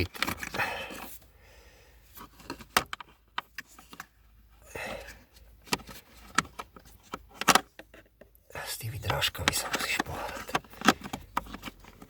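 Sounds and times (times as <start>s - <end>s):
plastic parts clicking: 9.4s - 12.0s.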